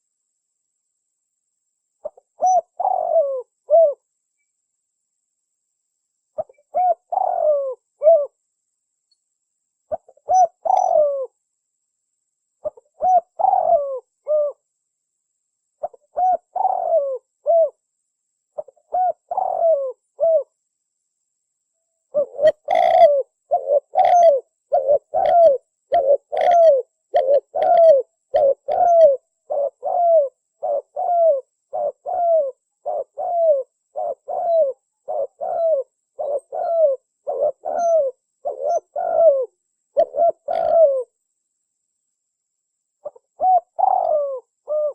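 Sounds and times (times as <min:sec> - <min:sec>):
dove cooing: 0:02.0 - 0:04.0, 0:06.4 - 0:08.4, 0:09.9 - 0:11.4, 0:12.6 - 0:14.6, 0:15.8 - 0:17.8, 0:18.6 - 0:20.6, 0:22.1 - 0:41.2, 0:43.0 - 0:44.9.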